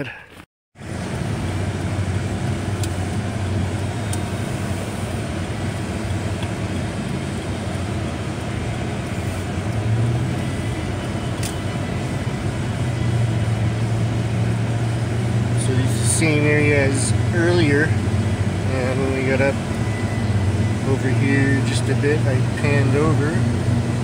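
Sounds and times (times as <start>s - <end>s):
car engine hum: 0.0s - 24.0s
road and tyre noise: 0.0s - 24.0s.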